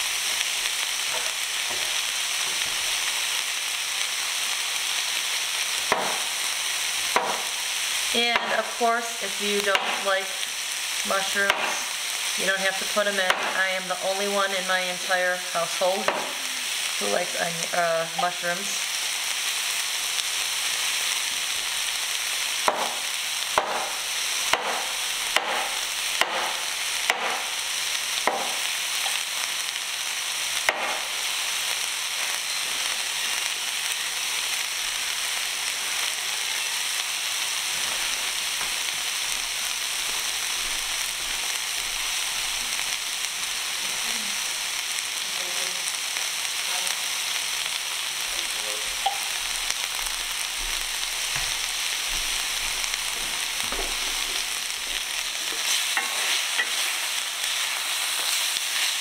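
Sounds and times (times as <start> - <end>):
vegetables sizzling in oil: 0.0 - 59.0
wooden spoon stirring pan: 53.1 - 59.0.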